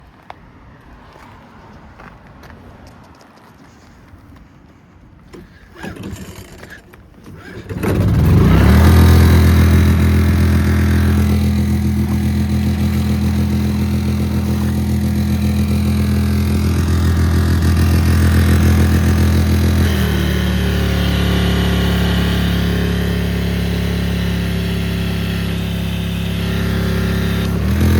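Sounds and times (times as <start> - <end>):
pressure washer engine running: 7.5 - 27.9.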